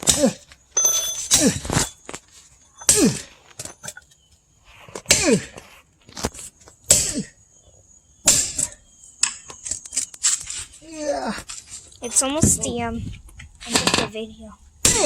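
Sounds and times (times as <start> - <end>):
sledgehammer striking steel wedge: 8.3 - 8.7.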